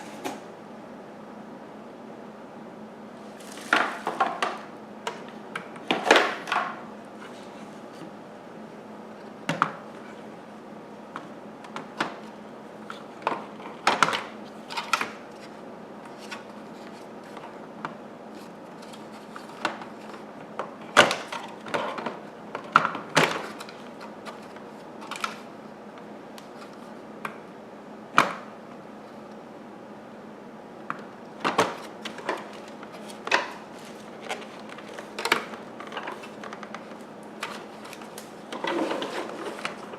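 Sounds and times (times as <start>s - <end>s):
parts being handled: 31.4s - 39.9s.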